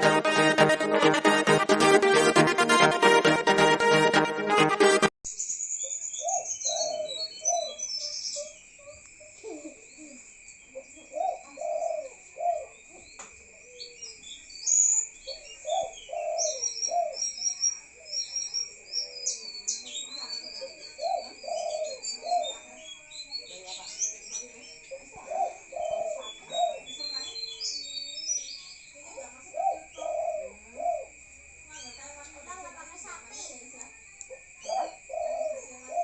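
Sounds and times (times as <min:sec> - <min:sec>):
high chirps: 0:00.0 - 0:06.1
dove cooing: 0:06.7 - 0:07.8, 0:10.8 - 0:12.8, 0:15.3 - 0:17.2, 0:20.6 - 0:22.6, 0:24.9 - 0:27.3, 0:29.1 - 0:31.2, 0:34.6 - 0:36.0.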